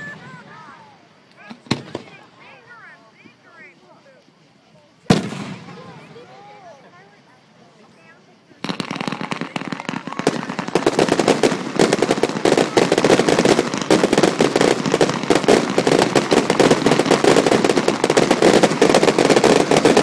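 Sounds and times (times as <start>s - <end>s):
fireworks popping bursts: 0.0s - 20.0s
fireworks launch thumps: 1.4s - 2.2s, 5.1s - 5.8s.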